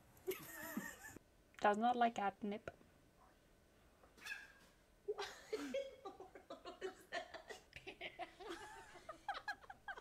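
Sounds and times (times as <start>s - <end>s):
person giggling and chuckling: 0.2s - 1.2s, 5.1s - 10.0s.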